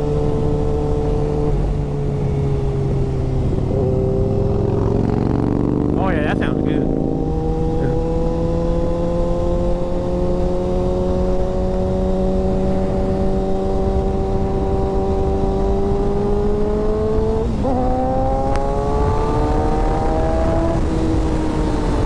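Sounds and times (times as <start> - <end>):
motorcycle engine at speed: 0.0 - 22.0
wind noise: 6.8 - 22.0.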